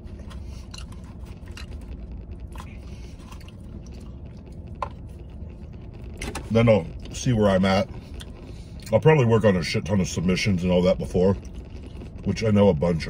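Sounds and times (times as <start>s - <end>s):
man chewing fries: 0.0s - 7.1s, 7.8s - 9.0s, 11.4s - 12.2s
steady low hum: 0.0s - 13.0s.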